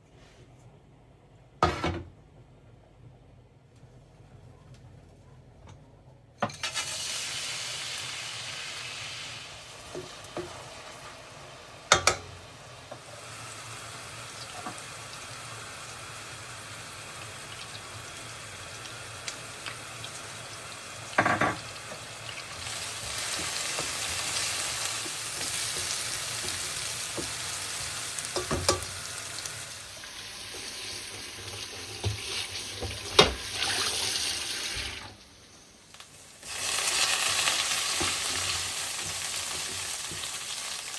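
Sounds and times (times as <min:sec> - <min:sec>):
food sizzling in a pan: 0:06.5 - 0:35.1, 0:36.0 - 0:40.9
utensil knocking against pan: 0:11.9 - 0:12.3.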